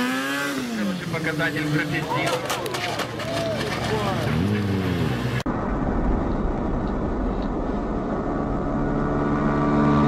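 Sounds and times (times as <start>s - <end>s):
low rumble of road noise: 0.8s - 10.0s.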